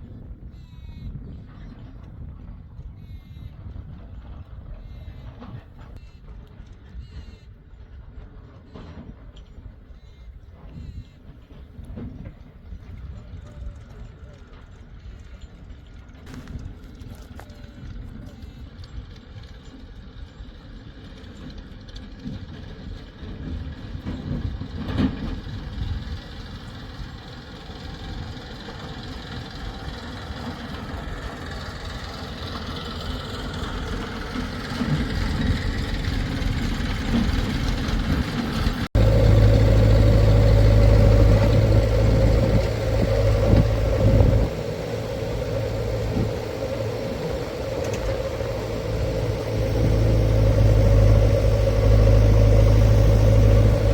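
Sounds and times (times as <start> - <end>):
low engine hum: 0.0 - 53.9
diesel engine running: 18.3 - 53.9.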